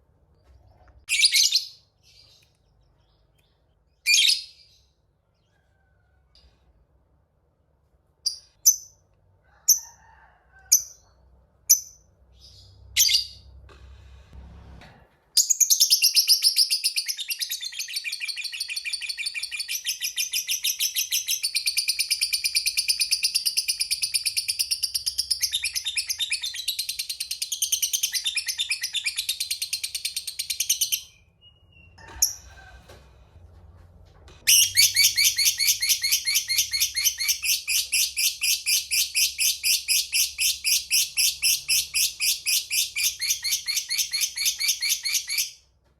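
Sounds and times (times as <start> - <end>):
lovebird chirping and trilling: 1.0 - 2.4, 4.0 - 4.9, 11.7 - 13.5, 15.4 - 32.4, 34.5 - 45.6.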